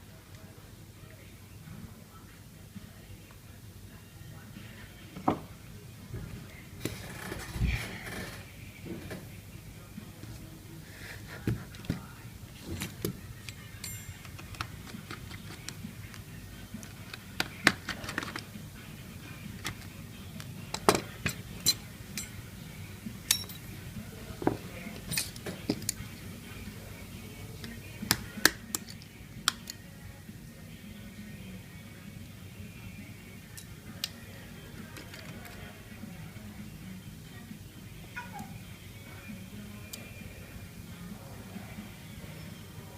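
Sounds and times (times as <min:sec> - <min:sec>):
small metal tools clicking: 0:23.3 - 0:23.6.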